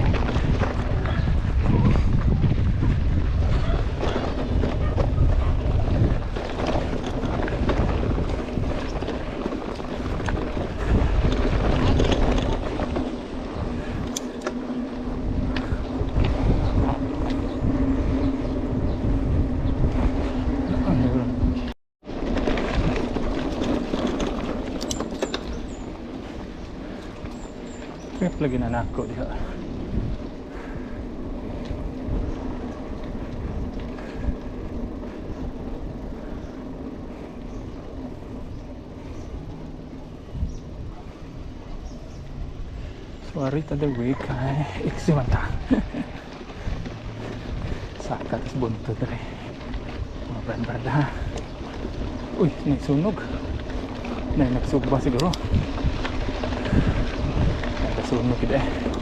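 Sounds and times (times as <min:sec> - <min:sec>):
bike knocks and rattles: 0:00.0 - 0:20.2, 0:22.0 - 0:29.3
bike clicks and rattles: 0:00.0 - 0:59.0
bike tyres rumbling on trail: 0:00.0 - 0:59.0
constant hum: 0:00.0 - 0:59.0.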